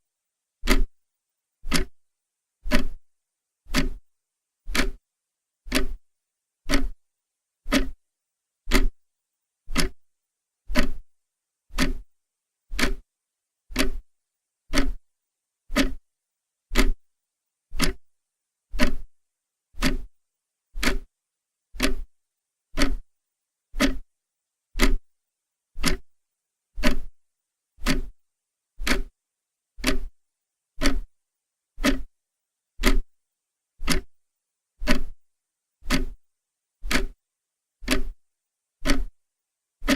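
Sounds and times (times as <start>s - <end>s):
clock ticking: 0.7s - 0.9s, 1.6s - 2.0s, 2.7s - 3.0s, 3.7s - 4.0s, 4.7s - 5.0s, 5.7s - 6.0s, 6.7s - 7.0s, 7.7s - 8.0s, 8.7s - 9.0s, 9.7s - 10.0s, 10.7s - 11.0s, 11.7s - 12.0s, 12.7s - 13.0s, 13.7s - 14.0s, 14.7s - 15.0s, 15.7s - 16.0s, 16.7s - 17.0s, 17.8s - 18.0s, 18.8s - 19.1s, 19.8s - 20.1s, 20.8s - 21.1s, 21.8s - 22.1s, 22.8s - 23.1s, 23.8s - 24.0s, 24.8s - 25.0s, 25.8s - 26.1s, 26.8s - 27.1s, 27.8s - 28.1s, 28.8s - 29.1s, 29.8s - 30.2s, 30.8s - 31.1s, 31.8s - 32.1s, 32.8s - 33.1s, 33.8s - 34.2s, 34.8s - 35.2s, 35.8s - 36.2s, 36.8s - 37.2s, 37.8s - 38.2s, 38.8s - 39.2s.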